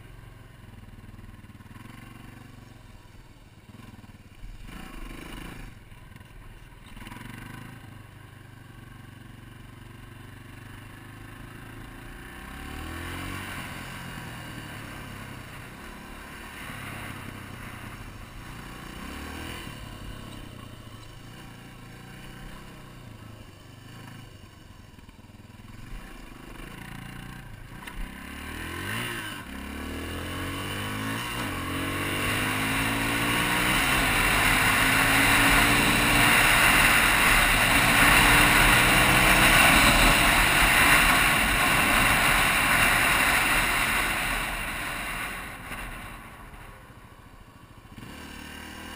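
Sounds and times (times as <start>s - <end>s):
motorcycle engine revving: 0.0s - 48.9s
rushing noise: 32.2s - 47.4s.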